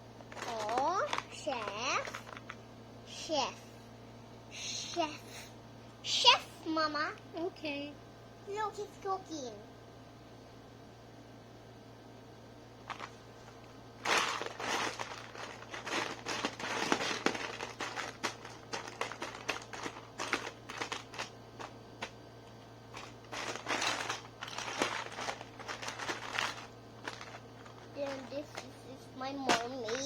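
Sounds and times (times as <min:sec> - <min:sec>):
plastic toys rustling: 0:00.2 - 0:02.6, 0:12.8 - 0:22.2, 0:22.9 - 0:30.0.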